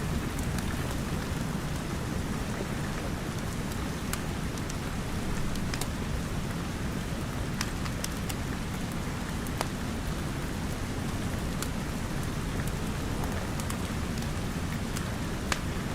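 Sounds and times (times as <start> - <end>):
steady rain: 0.0 - 15.9
wood fire crackling and popping: 0.1 - 15.9.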